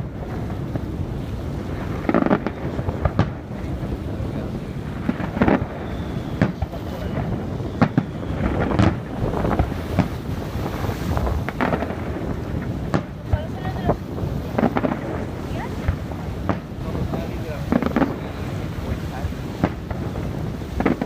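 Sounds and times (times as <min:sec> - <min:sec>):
fireworks rumble: 0:00.0 - 0:21.0
firework shell bursts: 0:15.8 - 0:21.0.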